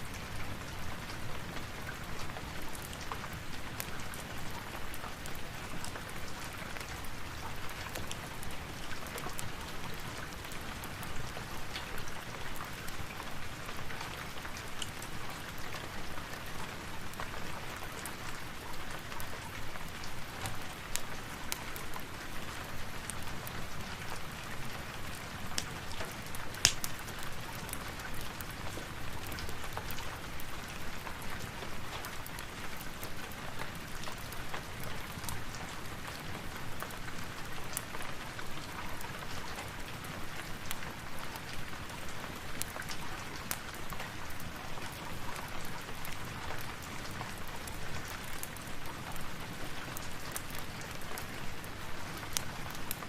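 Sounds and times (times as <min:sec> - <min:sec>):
rain pattering: 0:00.0 - 0:53.0
fireplace crackling and popping: 0:00.3 - 0:53.0.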